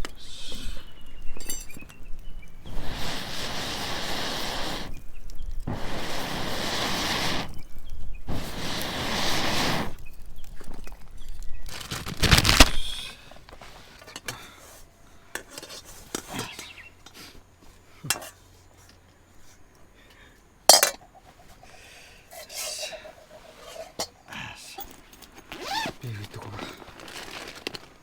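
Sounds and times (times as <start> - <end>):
metal pots and dishes clinking: 18.1 - 18.4, 20.7 - 21.1.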